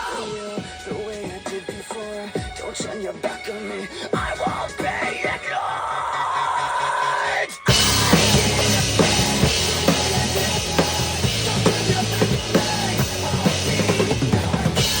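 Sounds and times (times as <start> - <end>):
drum kit rock beat: 0.0 - 5.6, 6.6 - 15.0
bass line: 7.7 - 15.0.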